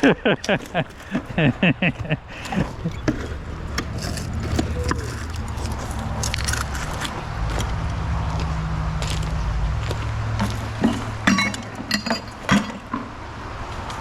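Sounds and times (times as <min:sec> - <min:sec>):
low engine-like hum: 0:00.0 - 0:14.0
metallic clinks and rattles: 0:10.4 - 0:12.9.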